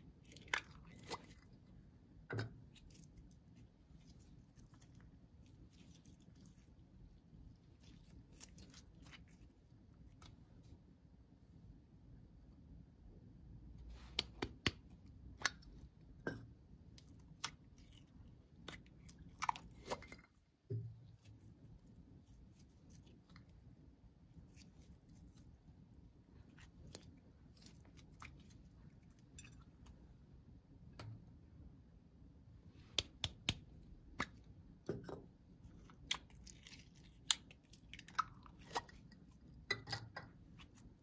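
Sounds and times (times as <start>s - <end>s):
slime clicking and crackling: 35.9s - 39.1s.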